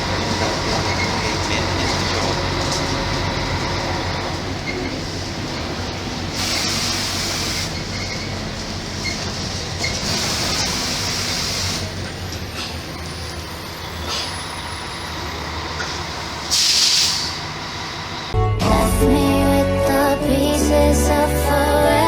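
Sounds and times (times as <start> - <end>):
bus engine hum: 0.0 - 22.0
air hiss: 16.5 - 17.4.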